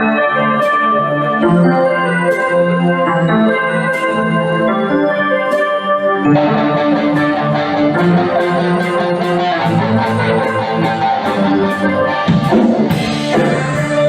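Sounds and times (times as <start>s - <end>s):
guitar: 0.0s - 14.0s
band playing: 6.3s - 14.0s.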